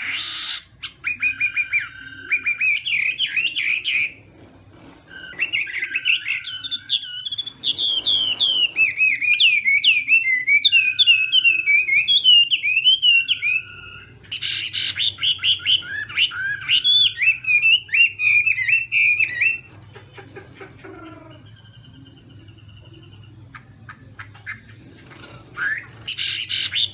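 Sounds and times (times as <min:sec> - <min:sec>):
bird singing whistled notes: 0:00.0 - 0:04.1, 0:05.2 - 0:19.7.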